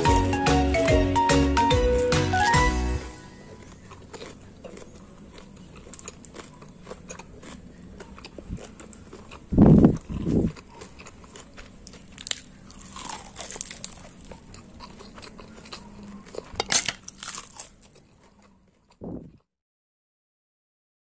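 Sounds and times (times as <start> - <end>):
crunchy food chewing: 0.0 - 0.4, 3.3 - 19.5.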